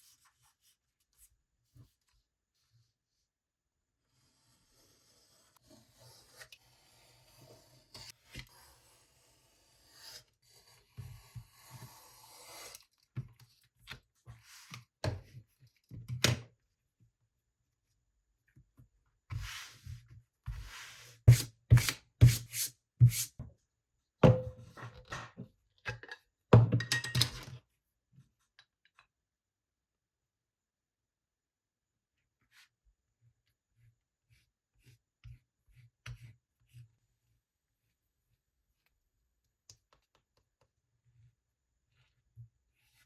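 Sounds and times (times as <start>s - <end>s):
tools knocking on workbench: 24.2s - 24.8s, 26.6s - 27.2s.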